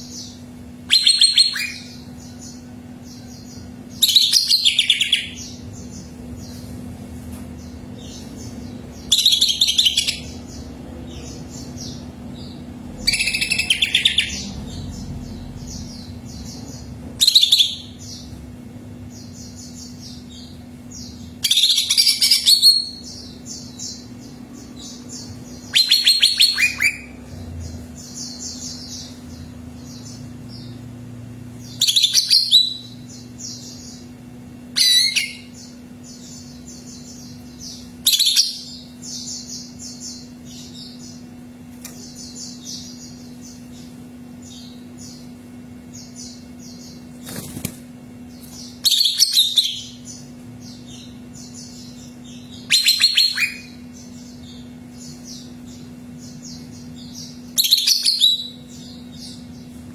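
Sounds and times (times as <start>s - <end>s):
bird rattling song phrases: 0.0s - 59.9s
faint steady hum: 0.0s - 59.9s
quick high bird chirps: 52.6s - 53.8s.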